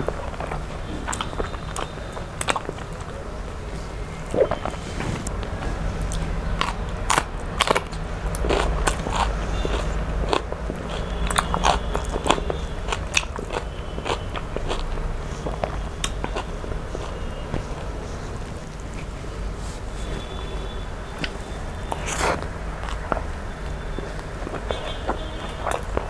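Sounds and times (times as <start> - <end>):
crunchy chewing: 0.0 - 26.0.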